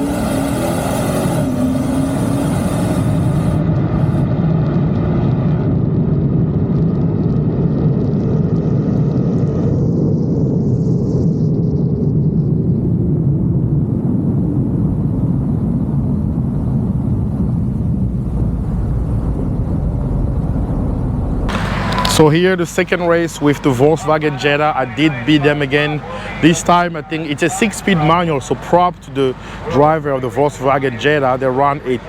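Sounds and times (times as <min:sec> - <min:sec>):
road noise: 0:00.0 - 0:06.8, 0:13.7 - 0:32.0
car engine rumble at speed: 0:00.0 - 0:32.0.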